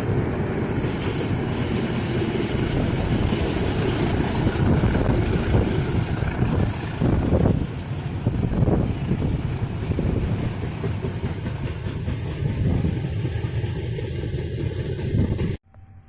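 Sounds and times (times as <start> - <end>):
train rumbling past: 0.0 - 15.6
wind on microphone: 2.5 - 11.0, 12.0 - 13.4.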